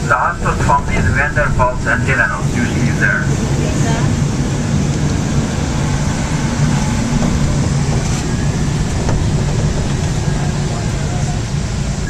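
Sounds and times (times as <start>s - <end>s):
bus engine hum: 0.0s - 12.0s
road noise: 0.0s - 12.0s.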